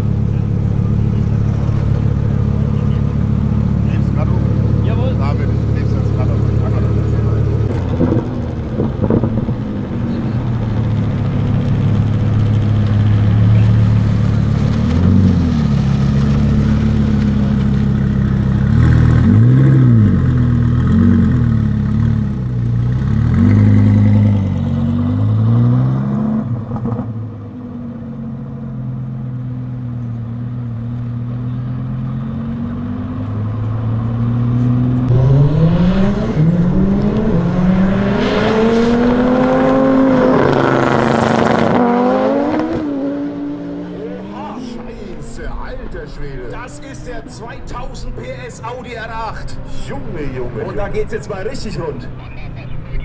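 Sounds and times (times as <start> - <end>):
car engine idling: 0.0 - 19.3
car engine revving and accelerating: 0.0 - 51.2.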